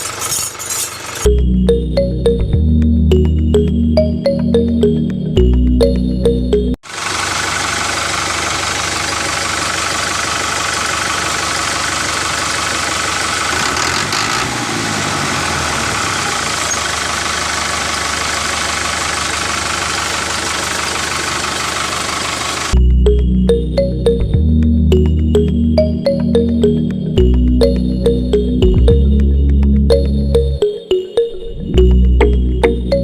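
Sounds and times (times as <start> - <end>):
music: 1.3 - 6.8, 22.8 - 33.0.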